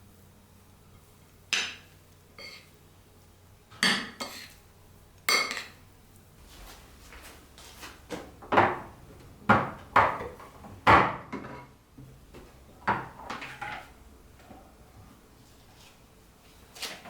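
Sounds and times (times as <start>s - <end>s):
kitchen knocks and clunks: 3.7s - 4.2s, 8.0s - 13.9s.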